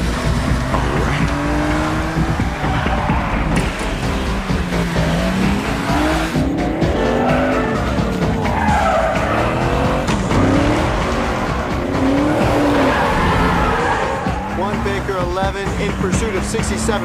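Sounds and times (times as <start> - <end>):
car engines revving: 0.0 - 17.0
film score music: 0.0 - 17.0
tyres squealing: 5.0 - 10.4, 11.3 - 14.9.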